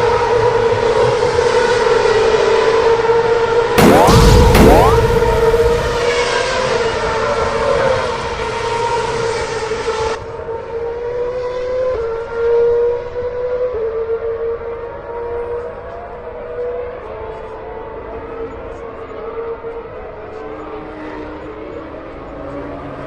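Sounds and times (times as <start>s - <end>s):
siren sounding: 3.8s - 6.5s.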